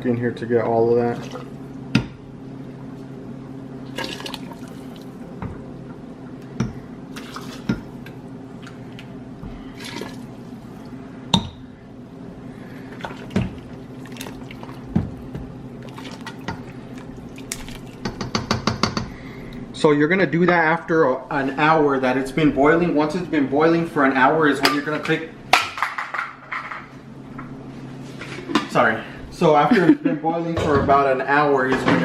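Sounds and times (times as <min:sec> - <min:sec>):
steady low hum: 0:00.0 - 0:32.0
liquid splashing and dripping: 0:03.9 - 0:05.2, 0:07.1 - 0:11.0, 0:12.9 - 0:18.1.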